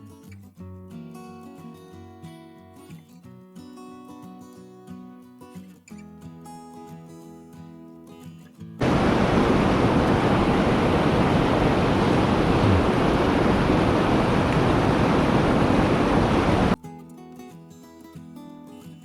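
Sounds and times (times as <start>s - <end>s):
loud steady rushing noise: 8.8s - 16.8s
guitar music: 16.8s - 19.0s.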